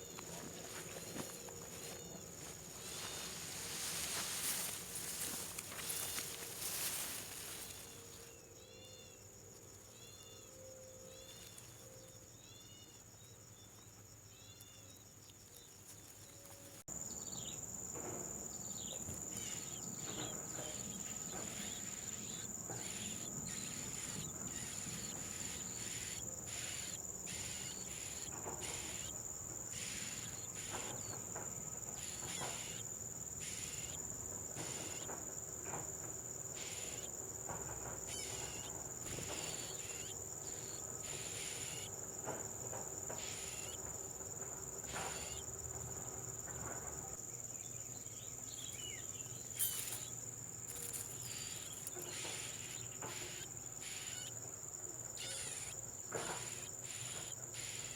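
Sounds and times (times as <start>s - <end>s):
insects trilling: 0.0s - 57.9s
pulsing rasping calls: 19.3s - 35.2s, 36.5s - 37.1s, 38.0s - 42.0s, 43.1s - 44.0s, 50.7s - 54.4s, 55.2s - 57.9s.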